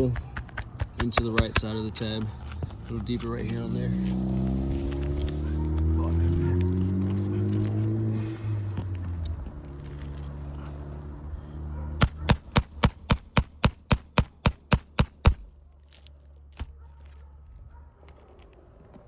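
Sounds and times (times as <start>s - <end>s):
hammer striking shingle roof: 0.0s - 1.8s, 12.0s - 15.5s.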